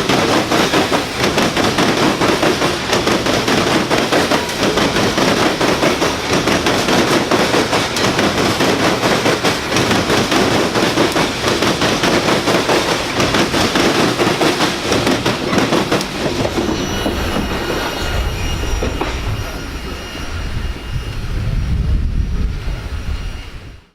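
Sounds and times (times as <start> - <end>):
train wheels clattering over rails: 0.0 - 21.1
high wheel squeal: 13.8 - 21.9
low rumble: 16.5 - 23.9.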